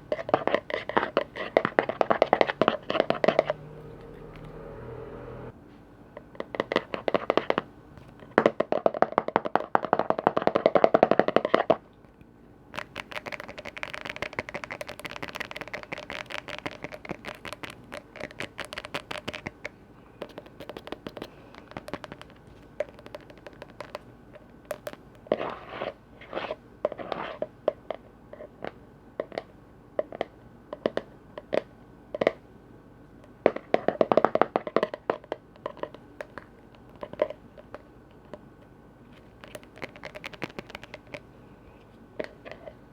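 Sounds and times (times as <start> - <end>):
fast tapping on container lids: 0.0 - 3.6, 8.3 - 11.8, 12.8 - 24.0, 39.4 - 41.2.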